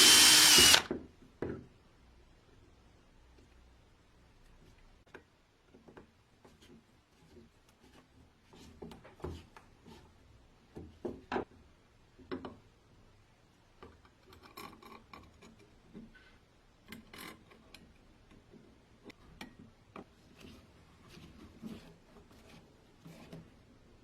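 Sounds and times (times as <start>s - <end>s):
rubbing or scraping sounds: 20.1s - 24.0s.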